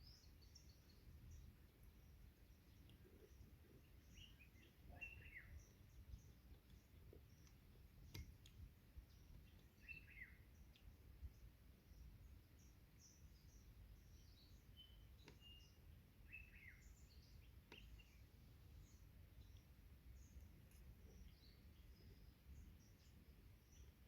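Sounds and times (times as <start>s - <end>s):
birds chirping: 0.0s - 24.0s
faint clicks: 2.7s - 3.4s, 6.4s - 9.8s.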